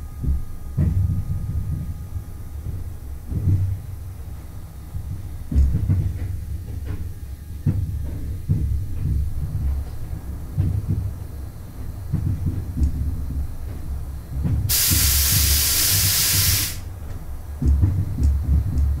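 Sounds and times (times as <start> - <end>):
train rumbling over points: 0.0 - 19.0
loud steady hiss: 13.1 - 17.6.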